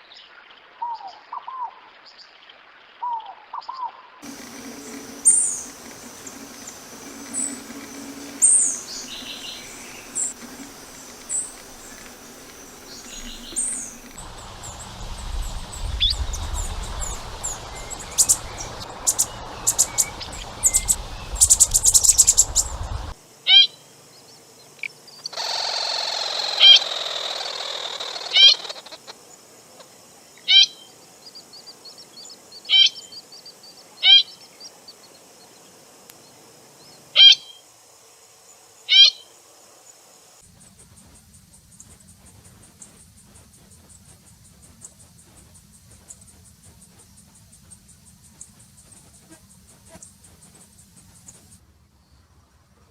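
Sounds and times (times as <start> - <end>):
songbirds calling: 3.6 - 24.4, 25.0 - 29.1, 40.4 - 52.5
low rumble: 4.2 - 23.2.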